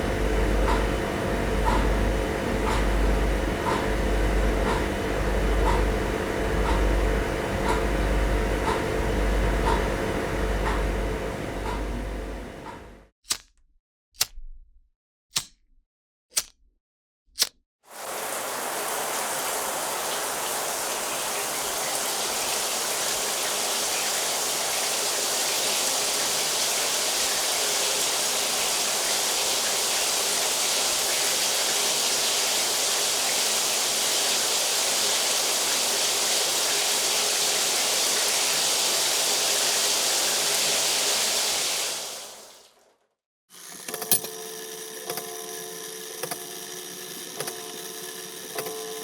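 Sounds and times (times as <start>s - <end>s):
water rushing: 17.9s - 42.7s.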